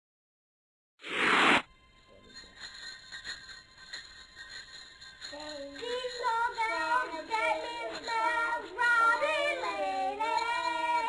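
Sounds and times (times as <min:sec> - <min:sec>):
light background music: 0:01.8 - 0:11.0
high child-like voice singing: 0:05.4 - 0:11.0.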